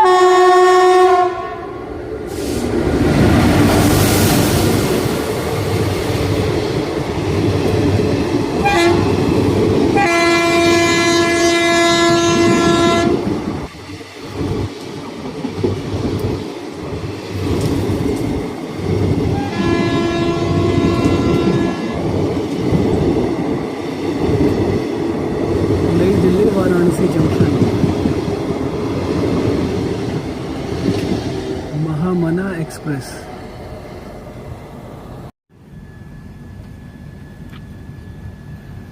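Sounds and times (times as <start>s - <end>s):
train horn: 0.0s - 1.8s, 8.6s - 9.2s, 9.9s - 13.3s, 19.3s - 22.0s
train rumbling on rails: 0.0s - 38.9s.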